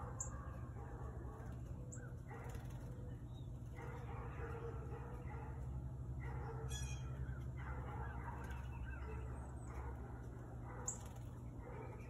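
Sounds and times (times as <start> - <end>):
birds clucking or honking: 0.0 - 12.0
steady low hum: 0.0 - 12.0.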